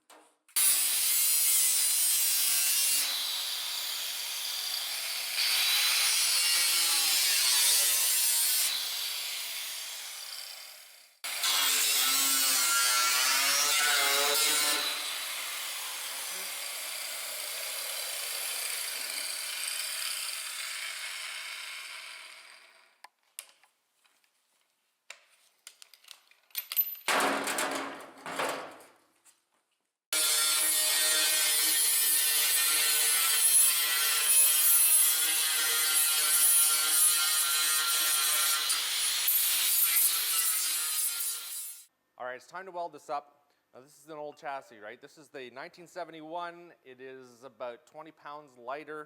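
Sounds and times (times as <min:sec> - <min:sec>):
power grinder on sheet metal: 0:00.6 - 0:23.0, 0:30.1 - 0:41.9.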